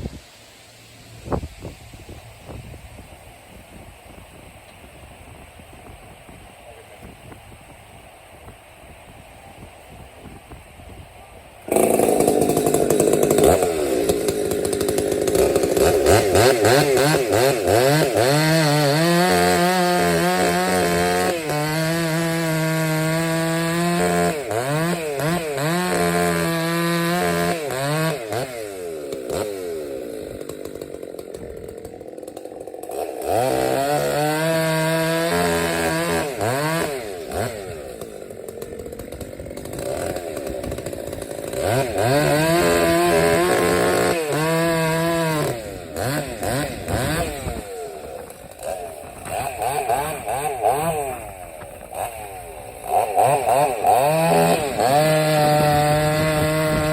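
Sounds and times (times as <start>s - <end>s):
chainsaw revving while cutting logs: 11.6s - 56.9s.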